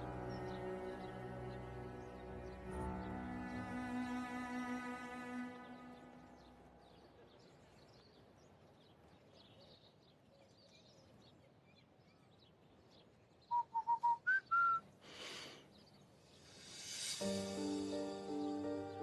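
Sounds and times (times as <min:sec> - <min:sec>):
birds chirping: 0:00.0 - 0:19.0
rush of noise: 0:16.4 - 0:17.5.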